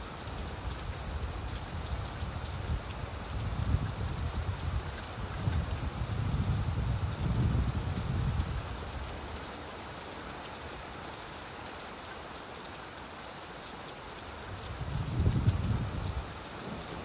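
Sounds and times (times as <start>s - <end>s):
steady rain falling: 0.0s - 17.0s
thunder rolling: 14.9s - 17.0s.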